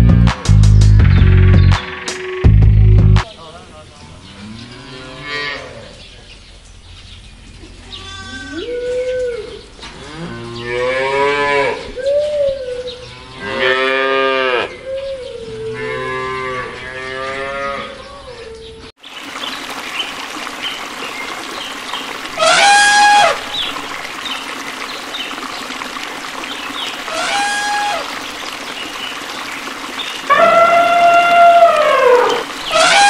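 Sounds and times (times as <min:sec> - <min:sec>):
cattle mooing: 0:13.2 - 0:14.7, 0:30.3 - 0:33.0.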